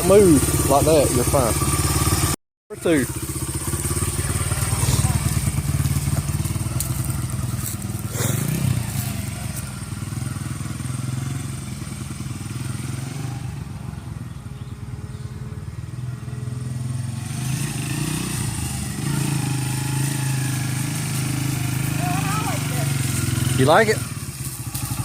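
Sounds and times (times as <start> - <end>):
dirt bike engine running: 0.0 - 25.0.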